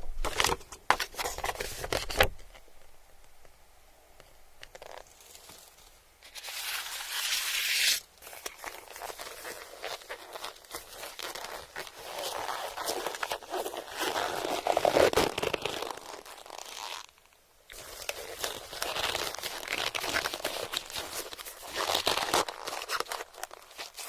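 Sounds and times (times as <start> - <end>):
crisp crunching while eating: 8.2 - 24.0.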